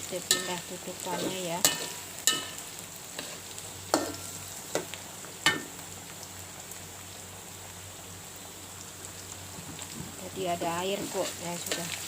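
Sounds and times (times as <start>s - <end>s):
food sizzling in oil: 0.0s - 12.0s
metal clinks on pan: 1.2s - 2.6s, 4.0s - 4.3s.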